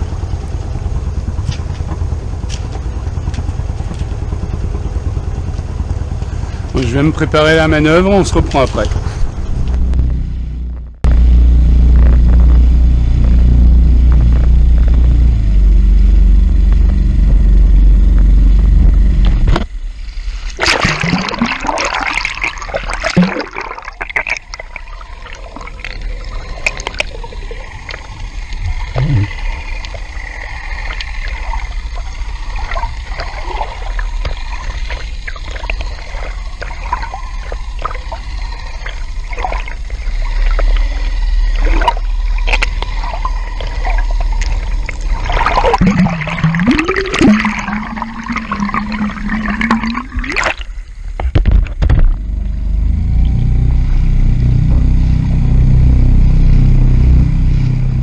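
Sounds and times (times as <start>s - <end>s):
heavy low rumble: 0.0s - 58.0s
water gurgling: 20.5s - 52.3s
water splashing loudly: 20.6s - 40.6s, 41.6s - 50.7s.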